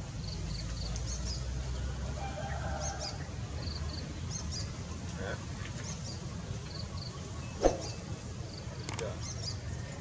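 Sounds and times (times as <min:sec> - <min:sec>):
birds chirping: 0:05.8 - 0:10.0.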